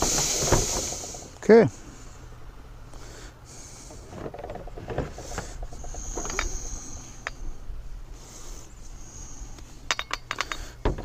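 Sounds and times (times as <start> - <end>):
steady low hum: 0.0 - 11.0
small parts clicking and tapping: 4.2 - 7.4, 9.6 - 11.0.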